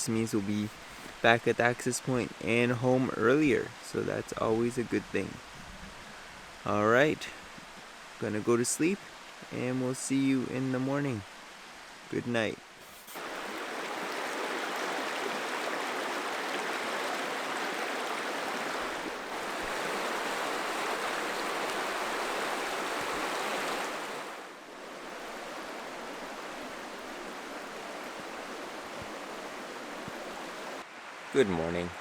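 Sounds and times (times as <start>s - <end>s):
river rapids rushing: 12.9s - 31.6s.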